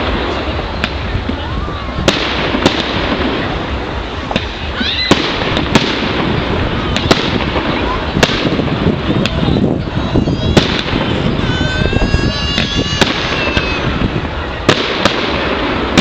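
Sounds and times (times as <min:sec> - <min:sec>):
fireworks bangs: 0:00.0 - 0:16.0
fireworks crackle: 0:00.0 - 0:16.0
fireworks rising whistles: 0:03.4 - 0:16.0.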